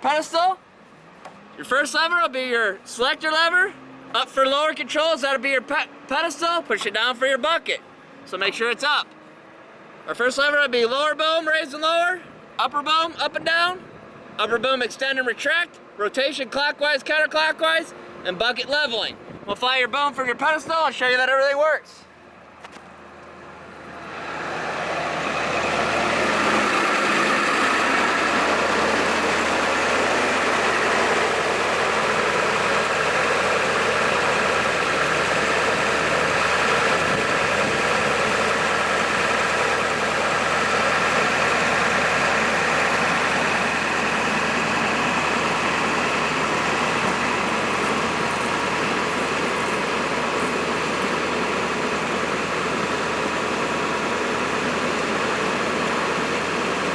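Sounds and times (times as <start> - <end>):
truck engine running hydraulic pump: 22.1 - 56.9.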